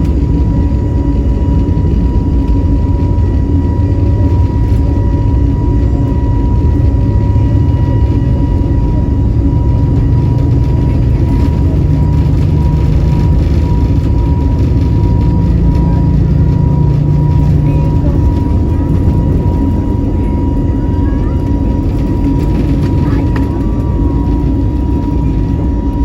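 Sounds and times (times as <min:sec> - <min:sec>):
airplane cabin engine rumble: 0:00.0 - 0:26.0.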